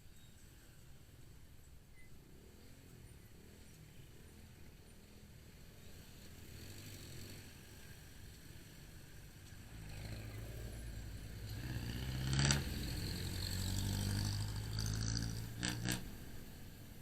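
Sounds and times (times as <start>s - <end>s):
motorcycle engine running: 9.7s - 17.0s.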